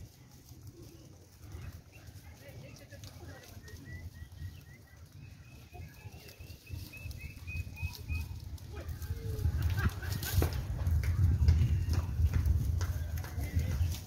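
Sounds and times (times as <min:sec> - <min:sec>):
small bird chirping: 0:03.6 - 0:08.4.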